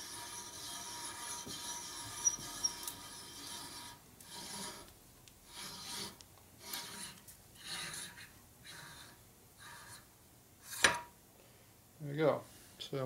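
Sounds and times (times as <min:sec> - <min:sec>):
hand reamer scraping metal: 0:00.0 - 0:10.0.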